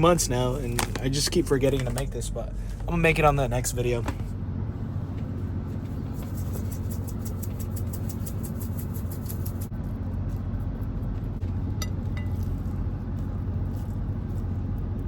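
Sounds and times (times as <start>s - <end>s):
truck engine idling: 0.0s - 7.8s.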